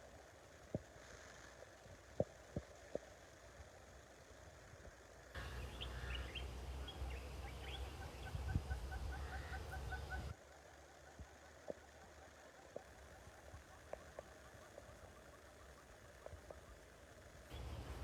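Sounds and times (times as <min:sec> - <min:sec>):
birds chirping: 0:05.4 - 0:10.4, 0:12.9 - 0:18.0
faint clicks: 0:11.0 - 0:17.7.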